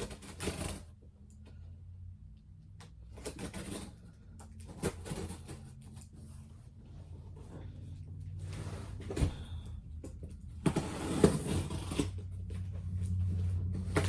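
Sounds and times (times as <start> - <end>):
cardboard box rustling and scraping: 3.1 - 14.0.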